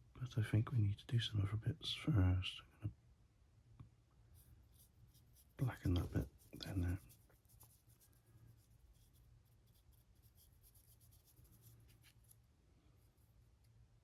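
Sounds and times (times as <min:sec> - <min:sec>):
paintbrush scratching: 0:04.4 - 0:13.8.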